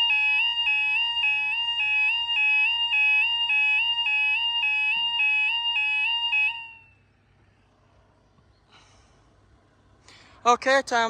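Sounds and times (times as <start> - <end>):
level crossing two-tone alarm: 0.0 - 7.1.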